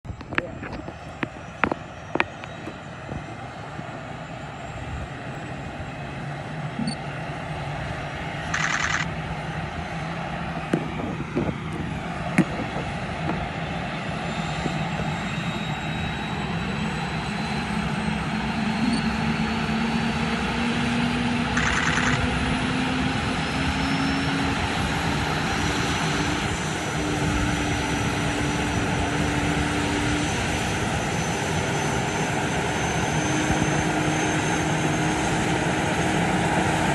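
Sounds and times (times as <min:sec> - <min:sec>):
helicopter starting up: 0:00.1 - 0:36.9
short buzzing tones: 0:21.6 - 0:22.2.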